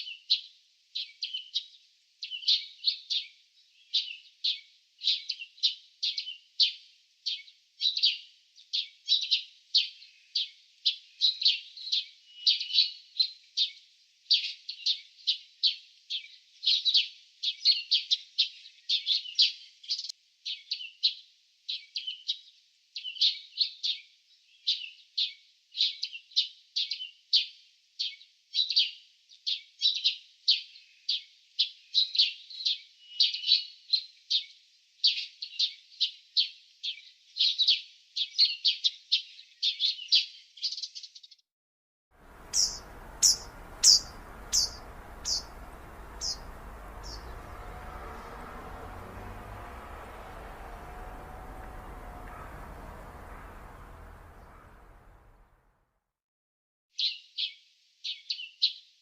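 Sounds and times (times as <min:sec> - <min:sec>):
small birds chirping: 0:42.2 - 0:55.6
outdoor background noise: 0:42.2 - 0:55.8.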